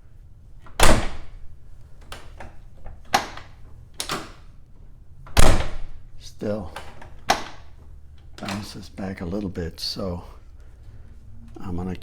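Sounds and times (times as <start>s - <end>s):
door latch and handle clicks: 0.6s - 4.5s, 5.2s - 6.0s, 6.7s - 8.8s
car door thudding shut: 0.8s - 1.4s, 5.4s - 6.0s.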